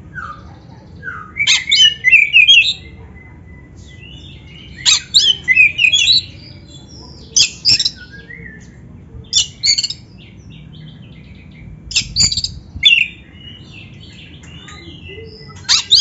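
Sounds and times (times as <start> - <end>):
bird singing whistled notes: 0.1 - 2.9, 7.4 - 16.0.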